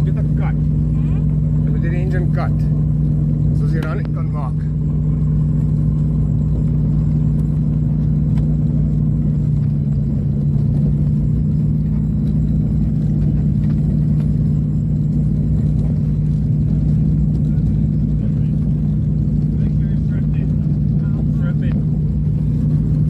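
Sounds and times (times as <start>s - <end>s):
aircraft engines droning in cabin: 0.0s - 23.0s.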